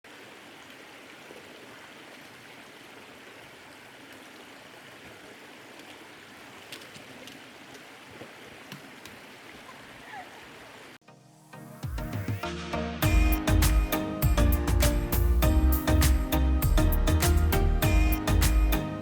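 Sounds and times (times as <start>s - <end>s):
stream running: 0.0s - 11.0s.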